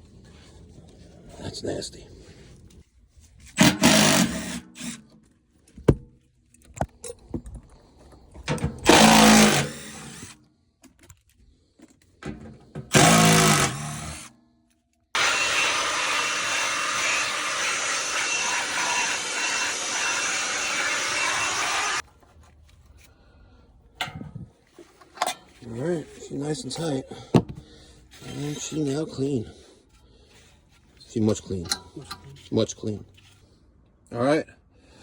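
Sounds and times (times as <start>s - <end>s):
power drill running: 3.6s - 5.0s, 8.8s - 10.4s, 12.9s - 14.3s, 15.2s - 22.0s.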